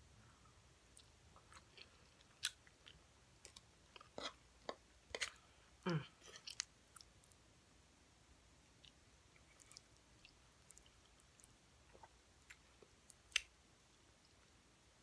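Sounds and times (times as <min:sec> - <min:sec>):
person chewing food: 0:00.9 - 0:07.4, 0:08.7 - 0:13.6.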